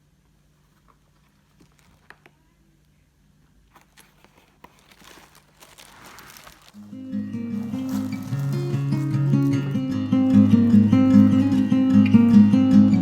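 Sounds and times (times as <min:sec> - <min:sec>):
plastic parts clicking and rustling: 0:03.7 - 0:06.9.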